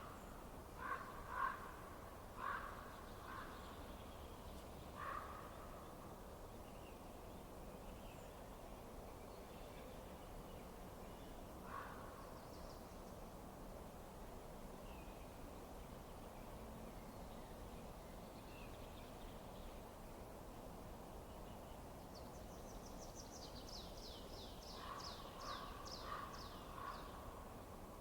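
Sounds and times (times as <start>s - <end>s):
low background hiss: 0.0s - 28.0s
songbird singing: 21.1s - 28.0s.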